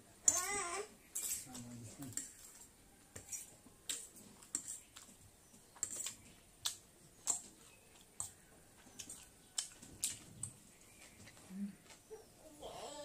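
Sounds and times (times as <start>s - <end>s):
mouth chewing noodles smacking: 5.8s - 12.0s.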